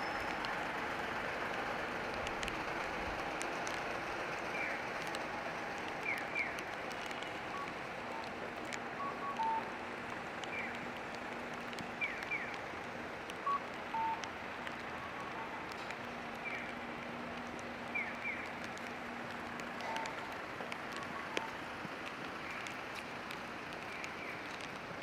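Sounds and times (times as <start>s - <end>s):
rain hiss: 0.0s - 25.0s
crossing signal chirps: 9.0s - 9.7s, 13.4s - 14.3s, 15.0s - 15.7s, 19.8s - 21.6s
short electronic beeps: 9.0s - 9.7s, 13.5s - 14.2s.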